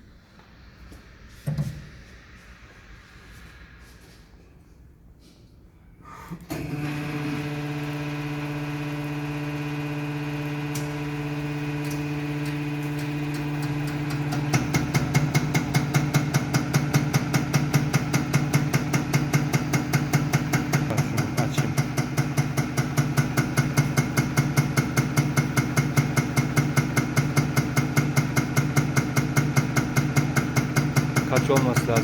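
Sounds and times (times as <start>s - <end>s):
test bench humming: 6.5s - 16.2s
fast even pump pulsing: 6.5s - 32.0s.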